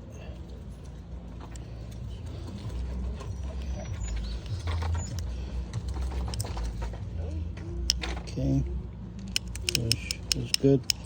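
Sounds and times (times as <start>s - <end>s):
small metal parts clicking: 3.6s - 6.9s, 7.8s - 8.2s, 9.2s - 11.0s.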